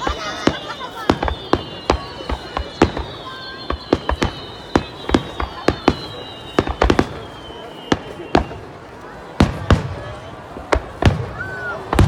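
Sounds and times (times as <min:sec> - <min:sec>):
fireworks banging: 0:00.0 - 0:12.0.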